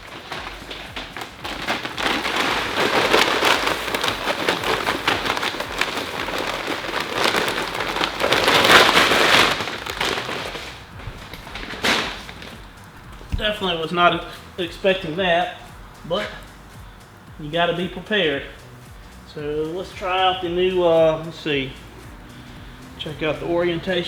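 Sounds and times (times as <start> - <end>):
grains pouring onto floor: 0.0 - 13.8.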